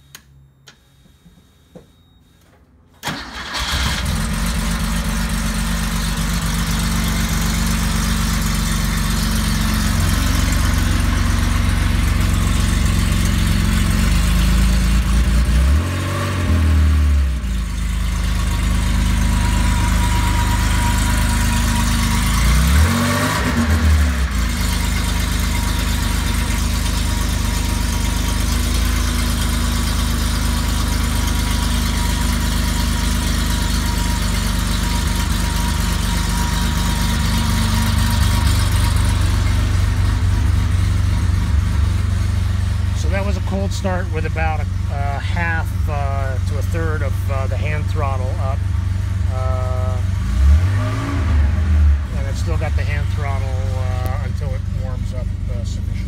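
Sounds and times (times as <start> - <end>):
car engine fast idle revving: 3.0 - 41.6
car engine starting: 3.0 - 56.0.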